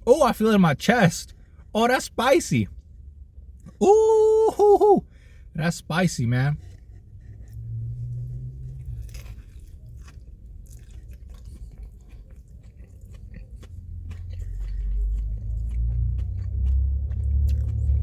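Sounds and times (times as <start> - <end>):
chewing with crunches: 6.6 - 18.0
wet mouth clicks: 10.1 - 17.9
low rumble: 13.8 - 18.0.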